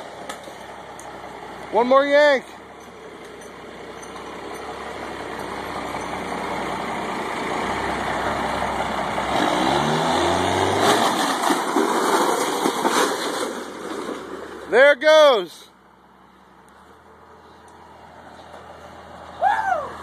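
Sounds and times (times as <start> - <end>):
diesel truck engine revving: 0.0 - 14.8.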